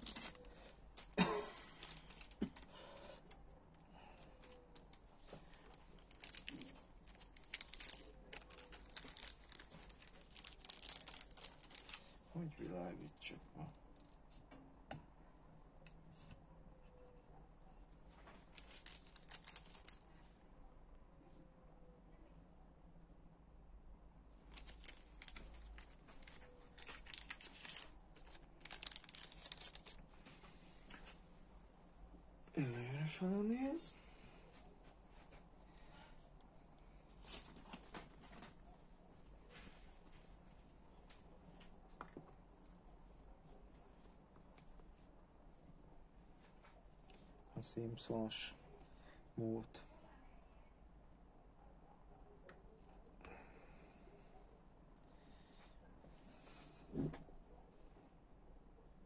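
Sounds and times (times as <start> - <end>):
packaging crinkling: 0.0 - 12.2, 18.1 - 20.1, 24.4 - 30.3, 37.2 - 38.6
small parts clicking: 5.6 - 12.0.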